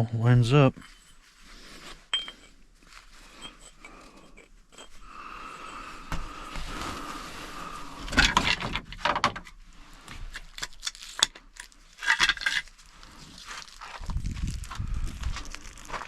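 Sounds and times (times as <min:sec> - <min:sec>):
metal tools clinking and scraping: 0:00.5 - 0:02.6, 0:03.2 - 0:05.8, 0:12.0 - 0:12.7.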